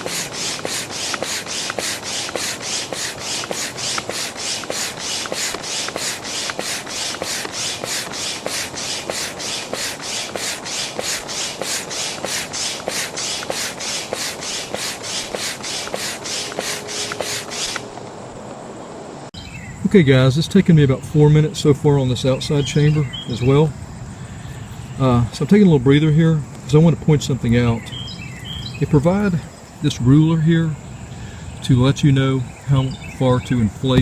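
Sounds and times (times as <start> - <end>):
manual air pump strokes: 0.0 - 18.0.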